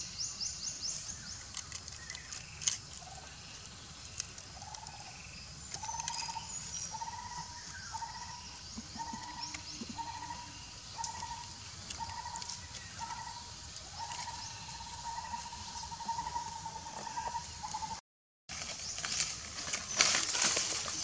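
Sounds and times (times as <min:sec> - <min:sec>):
outdoor ambience: 0:00.0 - 0:21.0
bird calling: 0:04.6 - 0:18.0.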